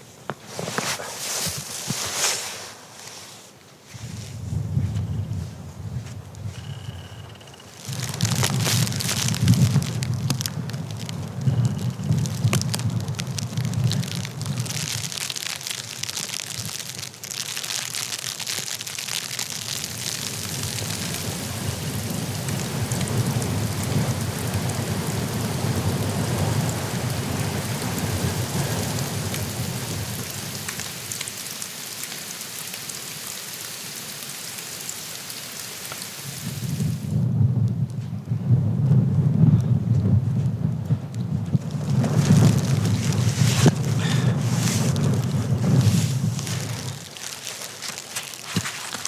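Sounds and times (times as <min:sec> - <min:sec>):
blizzard hiss: 0:19.7 - 0:31.8, 0:41.8 - 0:49.0.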